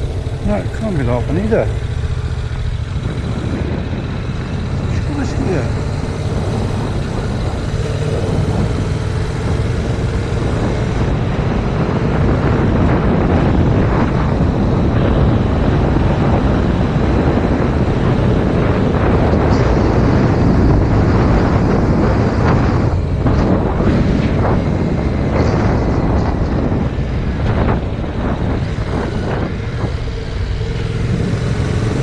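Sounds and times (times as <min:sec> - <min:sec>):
motorcycle engine running: 0:00.0 - 0:32.0
wind buffeting microphone: 0:00.0 - 0:32.0.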